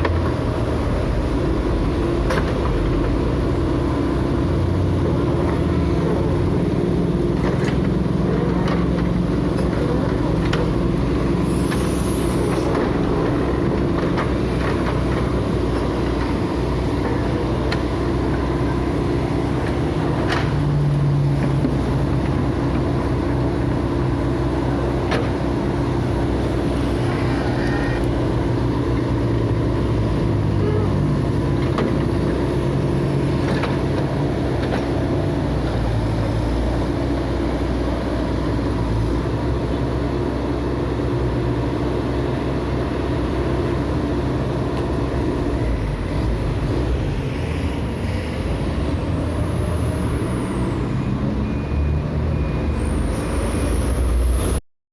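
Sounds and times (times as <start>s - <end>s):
diesel engine running: 0.0s - 54.6s.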